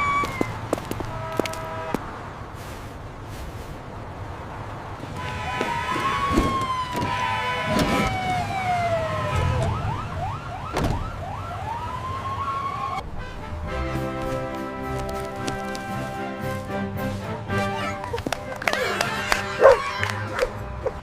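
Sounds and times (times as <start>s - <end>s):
emergency siren wailing and yelping: 0.0s - 0.6s, 5.2s - 13.0s, 17.8s - 21.0s.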